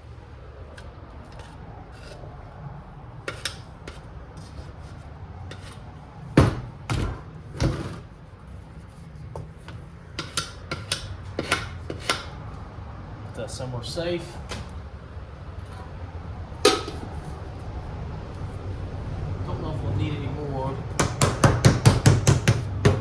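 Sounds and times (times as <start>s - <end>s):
tools scraping a can: 1.3s - 2.2s, 3.3s - 5.8s, 9.6s - 12.4s
loud knocks: 6.4s - 7.8s.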